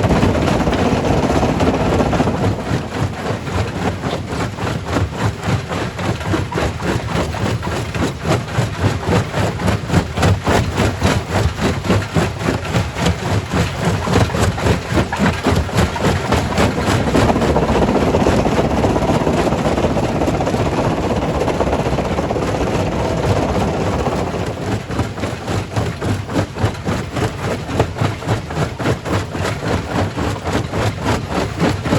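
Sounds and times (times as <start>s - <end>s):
grinding rumble: 0.0s - 8.0s, 9.2s - 27.7s
rock crusher knocking: 0.0s - 31.9s.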